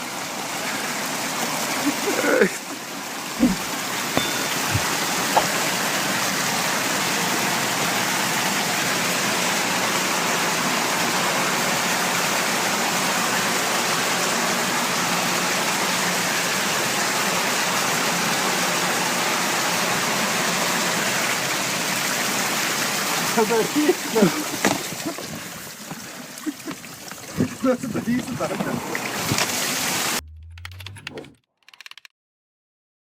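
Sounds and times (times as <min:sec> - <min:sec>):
water spraying from burst pipe: 0:00.1 - 0:30.2
small knocks: 0:03.4 - 0:05.7.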